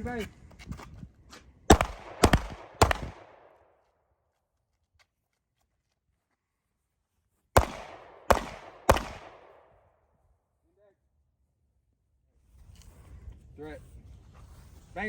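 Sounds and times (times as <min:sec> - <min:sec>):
handgun gunshots echoing: 0:01.7 - 0:03.5, 0:07.6 - 0:09.7.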